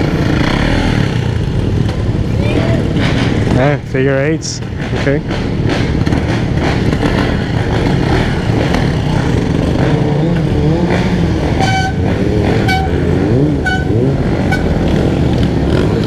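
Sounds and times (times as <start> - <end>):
dirt bike engines revving: 0.0 - 16.0
horn beeping: 11.4 - 15.0.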